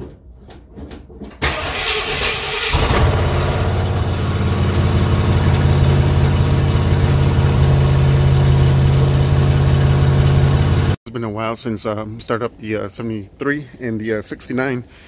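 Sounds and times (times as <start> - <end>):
engine idling loudly: 2.7 - 11.0
person talking: 11.1 - 14.9.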